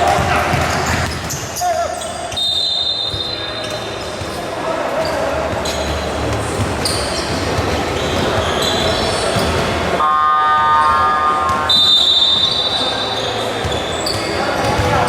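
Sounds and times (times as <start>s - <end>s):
basketball bouncing: 0.0s - 1.5s, 13.6s - 15.0s
sneaker squeaks on court: 0.0s - 9.8s, 11.7s - 15.0s
crowd din: 0.0s - 15.0s
horn tone: 10.0s - 13.5s.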